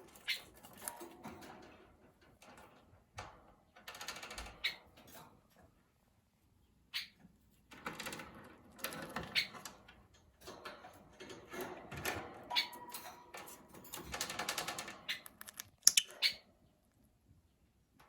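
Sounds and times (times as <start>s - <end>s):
parrot chattering and clicking: 15.0s - 16.4s.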